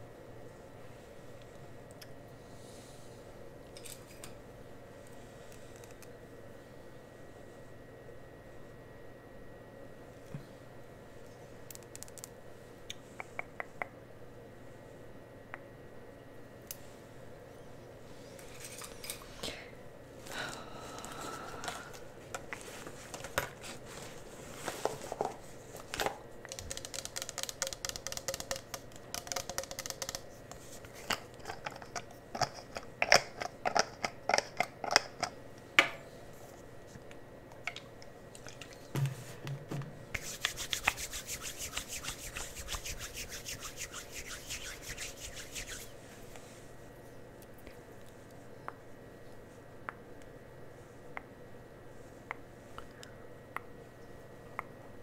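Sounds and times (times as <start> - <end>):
scratchy rubbing: 40.2 - 46.0.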